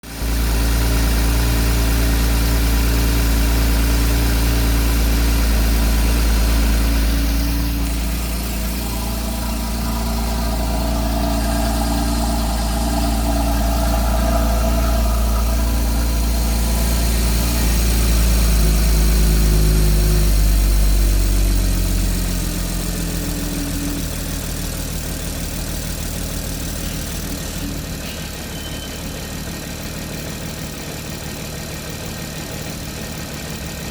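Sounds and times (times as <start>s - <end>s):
car engine idling: 1.1s - 22.1s.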